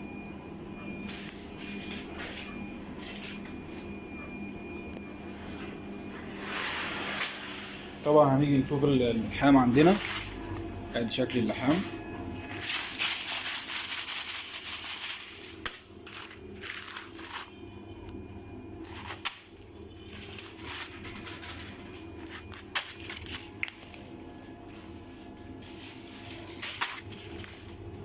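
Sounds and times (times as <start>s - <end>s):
sealing machine humming: 1.0s - 28.0s
foil bag crinkling: 12.5s - 17.6s, 20.1s - 24.0s.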